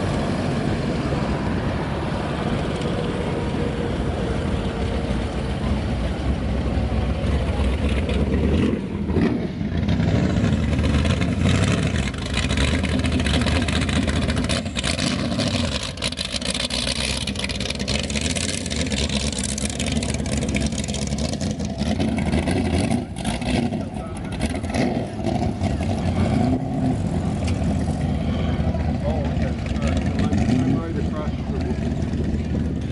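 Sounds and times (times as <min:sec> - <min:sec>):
car engine running slowly: 0:00.0 - 0:32.9.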